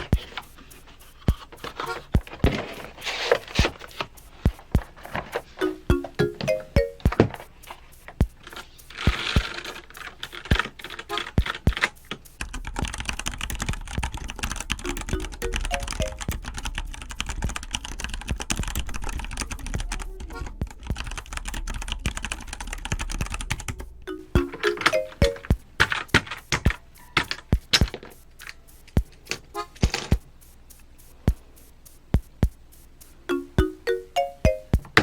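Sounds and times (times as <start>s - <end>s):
light background music: 3.6s - 9.6s, 10.4s - 28.0s, 32.1s - 35.0s
mechanical keyboard typing: 9.0s - 28.6s.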